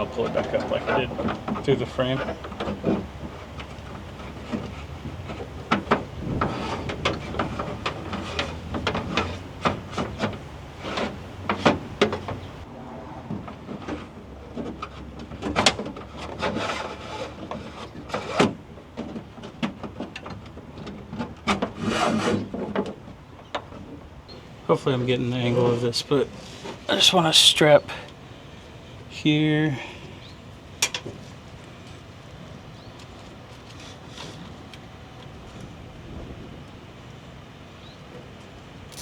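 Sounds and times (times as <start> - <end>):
handling clicks and knocks: 0.0 - 12.6
wires scraping and rubbing: 0.0 - 12.7.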